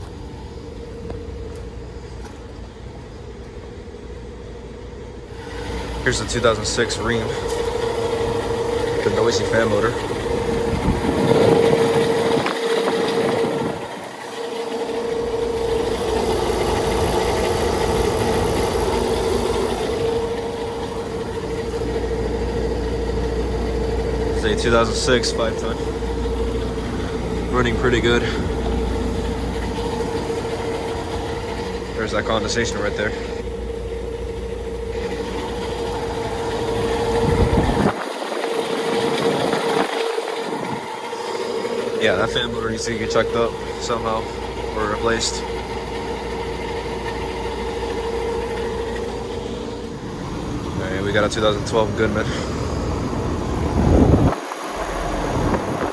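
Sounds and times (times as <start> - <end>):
condenser fan motor humming: 0.0 - 55.9
rushing air: 52.0 - 55.9.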